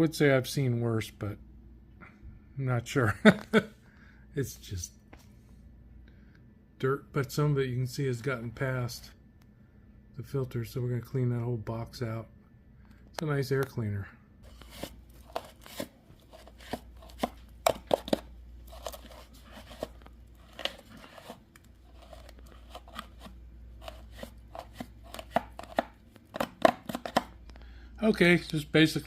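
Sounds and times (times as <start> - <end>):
low steady hum: 0.0 - 29.0
hands and tools clicking and scraping: 14.5 - 27.6.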